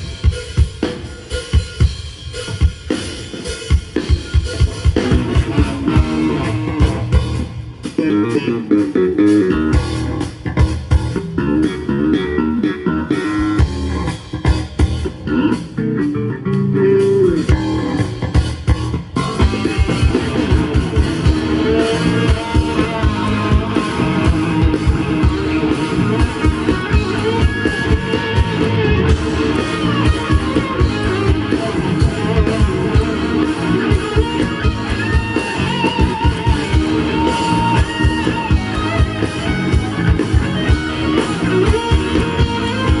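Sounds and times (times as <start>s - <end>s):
bass: 0.0s - 43.0s
guitars: 0.0s - 43.0s
steady drum beat: 0.0s - 43.0s.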